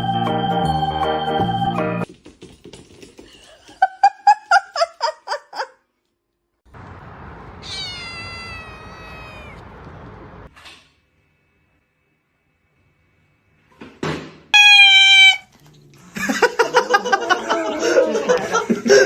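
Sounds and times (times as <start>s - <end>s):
cat meowing: 7.3s - 10.1s, 14.6s - 15.6s.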